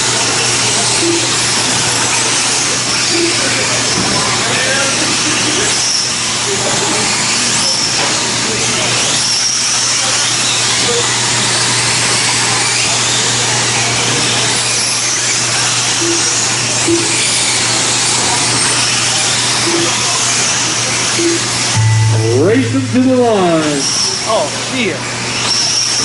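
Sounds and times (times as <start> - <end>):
low hum: 21.8 - 23.9.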